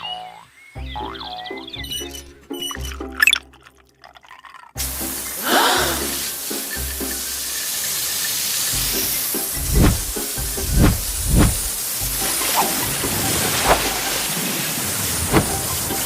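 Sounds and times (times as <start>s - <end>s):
garden hose spraying water: 4.8s - 16.0s.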